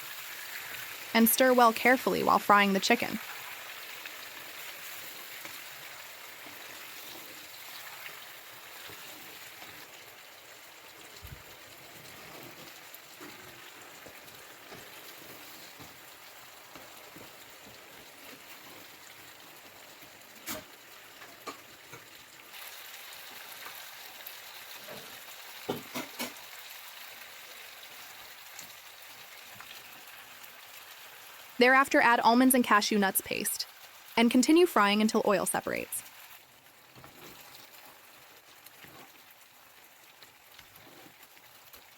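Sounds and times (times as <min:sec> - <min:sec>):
chicken sizzling in hot oil: 0:00.0 - 0:41.9.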